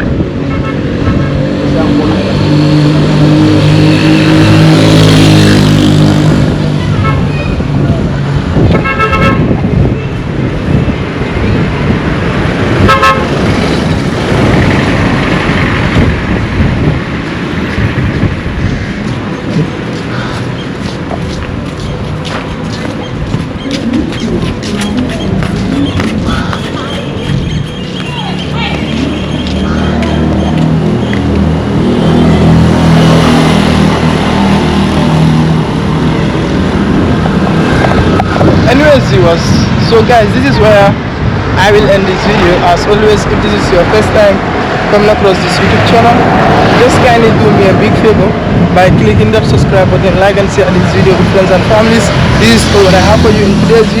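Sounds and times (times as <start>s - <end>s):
road traffic passing: 0.0s - 54.0s
vehicle horn tooting: 8.8s - 9.5s, 12.8s - 13.4s.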